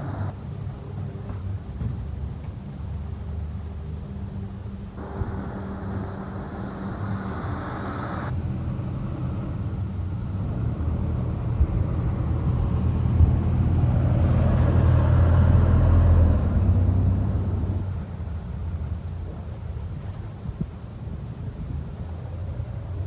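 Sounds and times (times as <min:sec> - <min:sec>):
garbage truck engine rumbling: 0:00.0 - 0:20.6
high hissing noise: 0:05.0 - 0:08.3.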